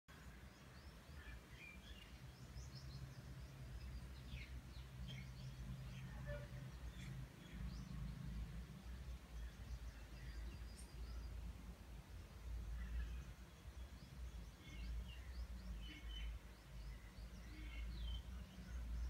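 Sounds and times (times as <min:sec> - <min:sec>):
small birds chirping: 0:00.1 - 0:19.0.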